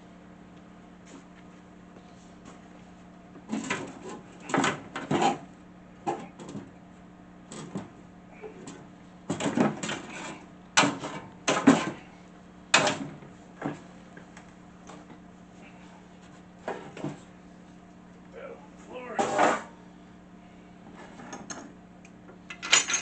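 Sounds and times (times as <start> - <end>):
steady low hum: 0.0 - 23.0
hand tools and metal parts clattering: 22.5 - 23.0.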